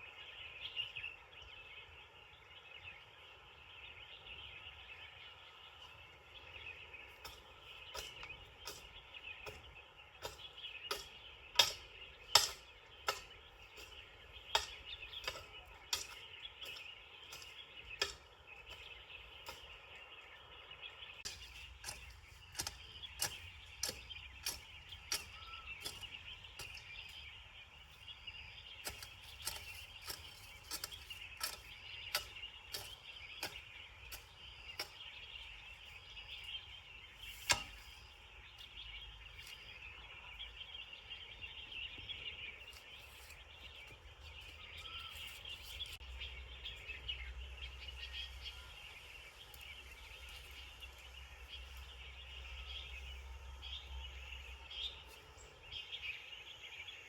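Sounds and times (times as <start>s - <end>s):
birds: 0.0s - 57.0s
insects chorus: 20.6s - 57.0s.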